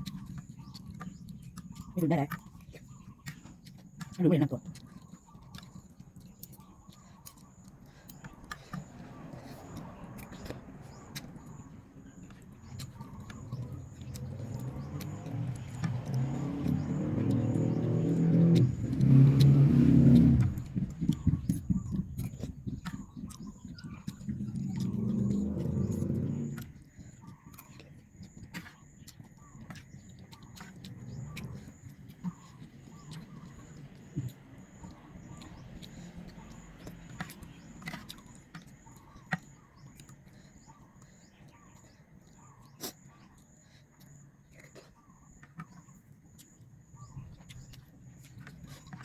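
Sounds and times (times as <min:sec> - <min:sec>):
motor vehicle engine running: 0:07.8 - 0:27.4, 0:30.2 - 0:39.9.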